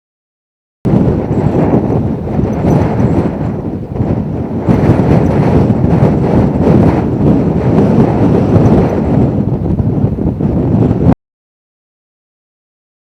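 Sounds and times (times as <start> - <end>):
wind buffeting microphone: 0.8 - 11.2.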